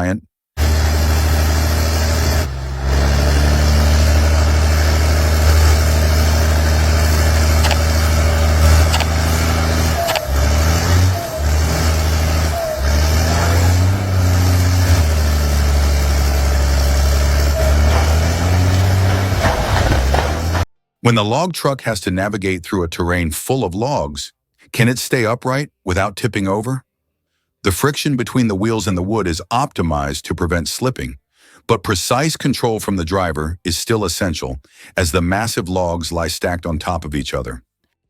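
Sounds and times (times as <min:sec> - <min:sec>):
diesel engine under load: 0:00.6 - 0:20.7
short squeaks: 0:07.4 - 0:15.0.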